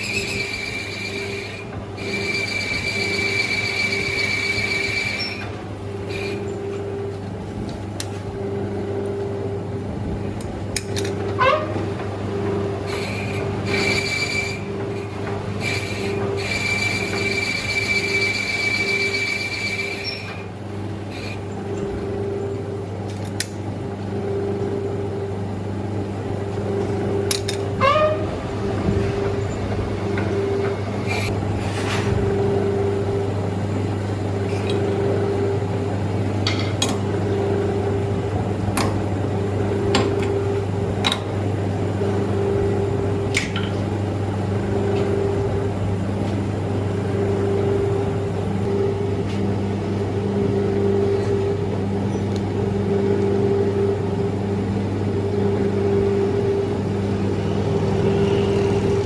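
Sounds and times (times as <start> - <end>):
high squeal: 0.0 - 5.5, 12.9 - 20.4, 27.8 - 28.5
lathe motor hum: 0.0 - 59.0.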